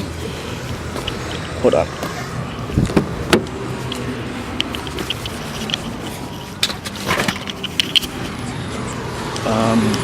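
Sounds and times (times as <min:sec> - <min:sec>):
car engine idling: 0:00.0 - 0:10.0
handling clicks and knocks: 0:02.8 - 0:08.4.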